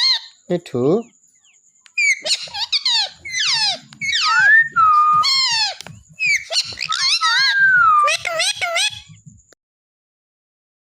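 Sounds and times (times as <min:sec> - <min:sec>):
parrot shrill calls: 0:00.0 - 0:00.4, 0:02.0 - 0:09.1.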